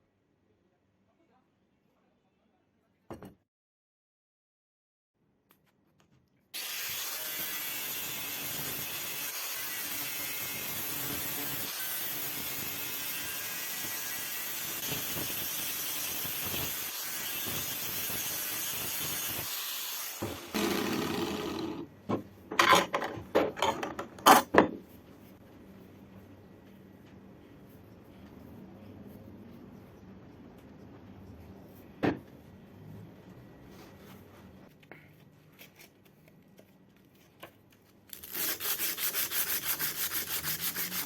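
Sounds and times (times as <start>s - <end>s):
power tool abrasive scraping: 16.3s - 21.9s
scraping strokes on workpiece: 38.3s - 41.0s.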